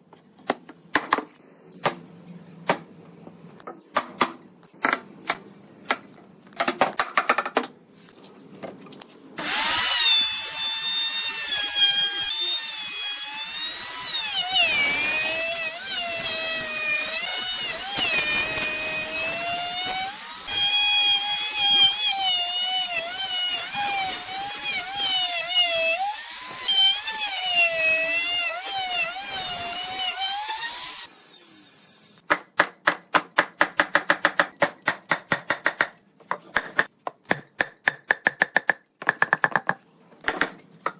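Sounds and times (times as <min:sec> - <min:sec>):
power drill whining into wood: 0:09.4 - 0:32.2.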